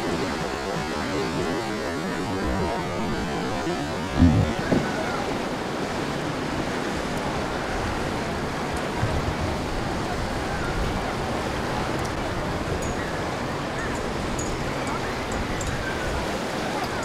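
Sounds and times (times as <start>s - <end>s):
low thumps: 0.0s - 5.5s
wind buffeting microphone: 0.0s - 16.8s
surf rushing: 0.0s - 17.0s.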